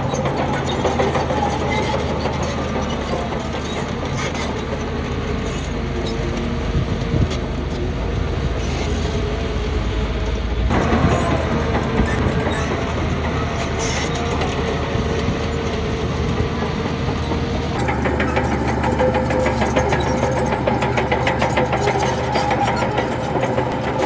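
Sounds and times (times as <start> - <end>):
diesel machinery running: 0.0 - 24.0
rapid regular clatter: 10.7 - 24.0.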